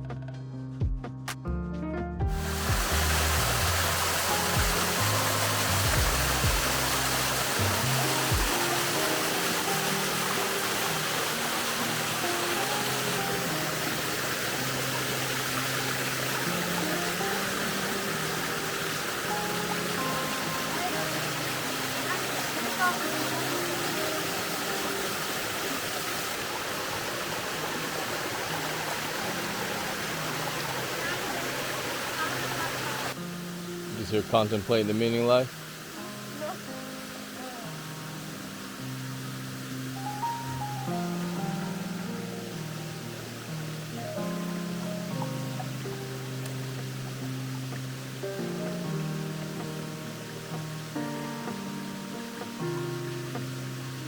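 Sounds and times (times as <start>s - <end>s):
background music with bass and drums: 0.0s - 9.9s
waterfall roaring: 2.4s - 33.2s, 34.0s - 53.8s.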